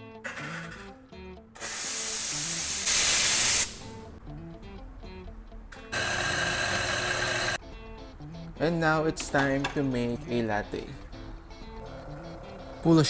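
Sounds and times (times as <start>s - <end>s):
espresso machine steam hissing: 1.6s - 3.8s, 6.0s - 7.6s.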